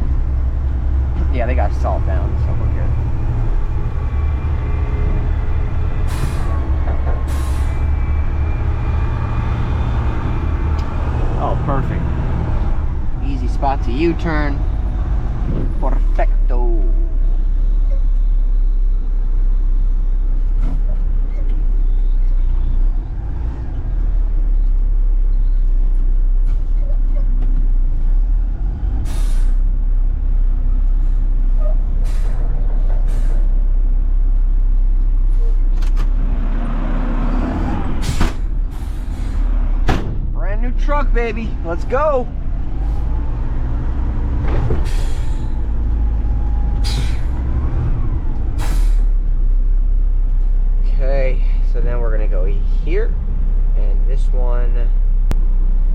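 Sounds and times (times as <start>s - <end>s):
diesel engine rumble: 0.0s - 55.9s
air brake hisses: 29.1s - 29.6s, 44.8s - 45.6s, 46.8s - 47.4s, 48.6s - 49.1s.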